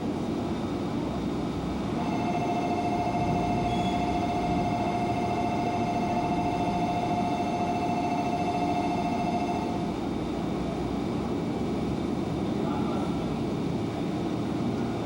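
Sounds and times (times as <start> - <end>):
train rumbling: 0.0 - 15.0
high steady tone: 1.8 - 10.2.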